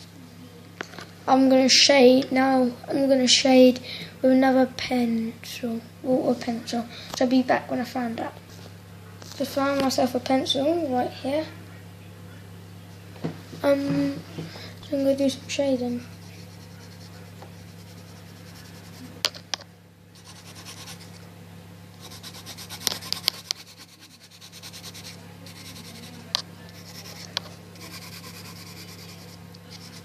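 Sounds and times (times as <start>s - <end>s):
low steady hum: 0.0s - 30.0s
pencil scratching on paper: 16.0s - 19.1s, 20.2s - 21.2s, 22.0s - 26.2s, 26.8s - 30.0s.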